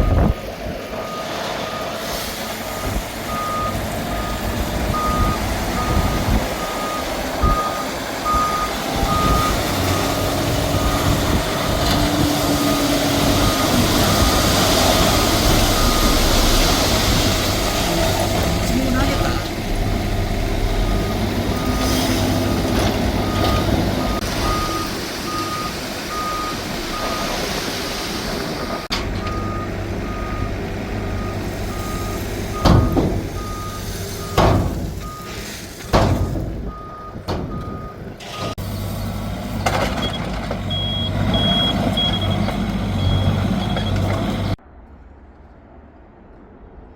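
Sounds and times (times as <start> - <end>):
reversing alarm beeping: 2.6 - 11.8, 12.6 - 18.0, 18.9 - 27.4, 29.3 - 35.4, 36.0 - 38.6, 40.0 - 44.5
sharp clunks: 32.6 - 33.4, 34.3 - 35.0, 35.8 - 38.6.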